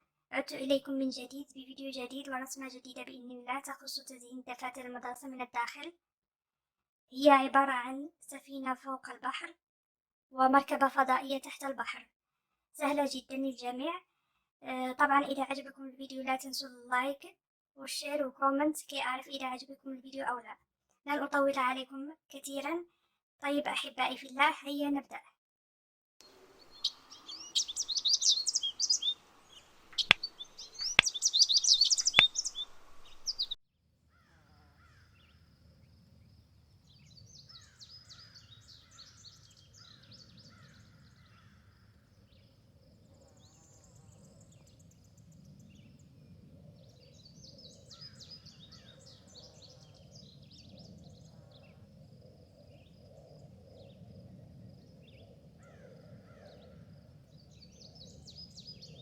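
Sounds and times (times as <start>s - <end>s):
birds chirping: 26.2s - 33.6s, 34.4s - 54.1s, 54.8s - 59.0s
sharp clicks: 29.9s - 33.6s.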